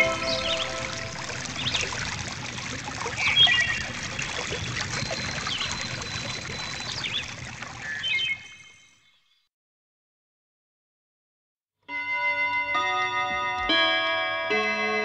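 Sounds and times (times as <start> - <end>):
birds chirping: 0.0 - 2.0, 3.2 - 8.8
stream water trickling: 0.0 - 9.2.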